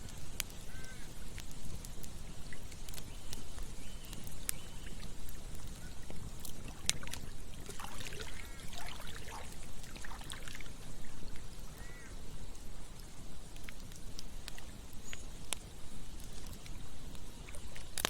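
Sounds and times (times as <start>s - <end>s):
campfire crackling: 0.0s - 18.0s
river flowing: 6.2s - 11.9s.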